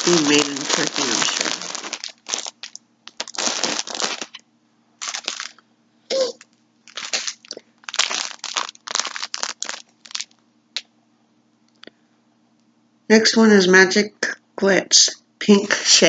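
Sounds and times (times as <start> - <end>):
packaging crinkling and rustling: 0.0 - 4.4, 5.0 - 5.6, 6.3 - 10.4.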